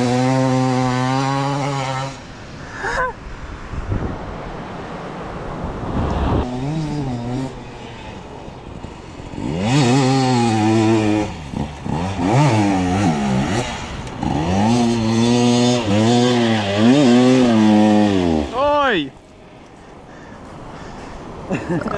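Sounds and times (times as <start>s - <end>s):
dirt bike engine revving: 0.0s - 2.5s, 6.1s - 20.2s.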